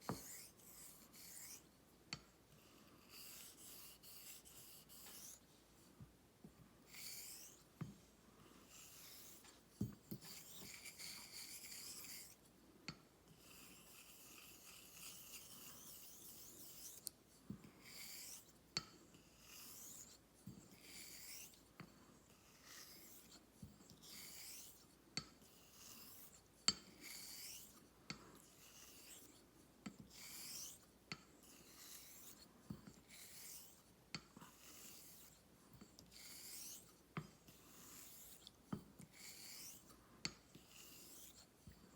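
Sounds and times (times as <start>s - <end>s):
razor hissing across whetstone: 17.8s - 18.4s, 24.1s - 24.8s, 27.0s - 27.7s, 30.1s - 30.8s, 39.2s - 39.8s.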